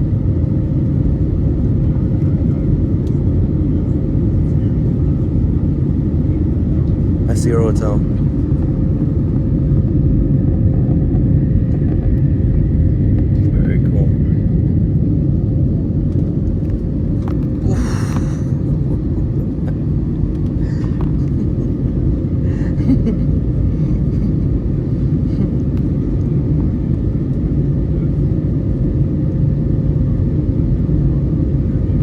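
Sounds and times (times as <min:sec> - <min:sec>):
airplane cabin engine rumble: 0:00.0 - 0:32.0
faint steady hum: 0:15.0 - 0:27.0.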